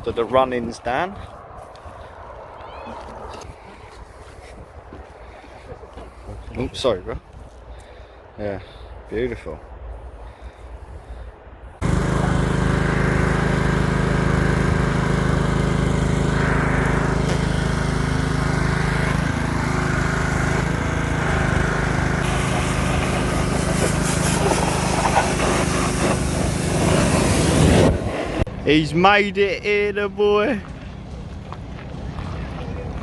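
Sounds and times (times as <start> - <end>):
engine running steadily: 11.8 - 28.5.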